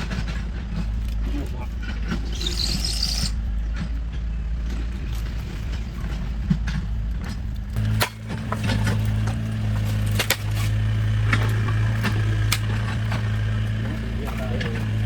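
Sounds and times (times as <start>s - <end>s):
motor humming: 4.9s - 15.0s.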